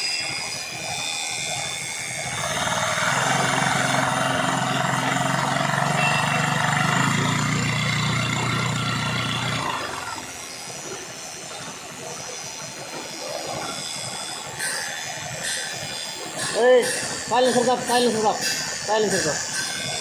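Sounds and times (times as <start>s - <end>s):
moped engine running: 2.2s - 12.2s.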